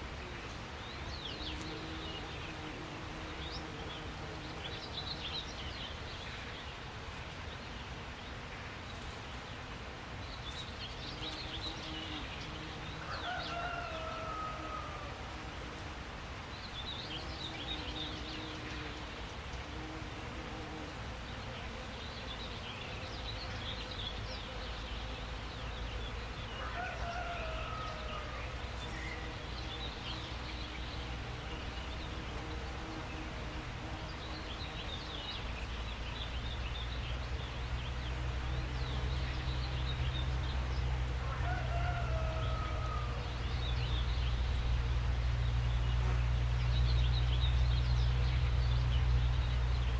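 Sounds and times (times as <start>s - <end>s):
songbirds chirping: 0.0s - 49.9s.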